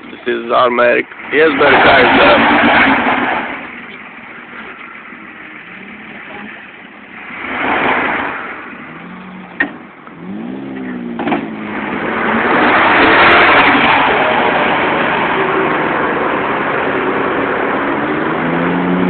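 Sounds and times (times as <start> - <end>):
pickup truck engines revving: 0.0 - 19.0
sharp knocks: 11.1 - 11.5.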